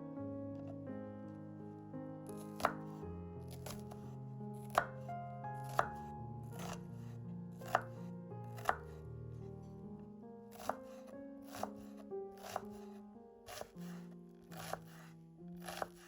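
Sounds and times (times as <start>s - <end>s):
soft background music: 0.0s - 16.0s
knife chopping on cutting board: 2.3s - 7.0s, 7.6s - 8.0s, 8.6s - 9.0s, 10.5s - 12.9s, 13.5s - 16.0s.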